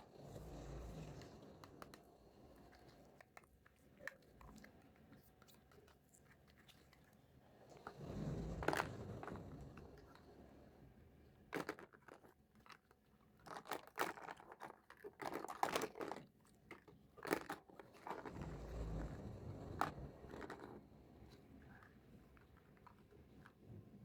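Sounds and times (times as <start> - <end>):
plastic toy pieces clicking: 11.6 - 18.3.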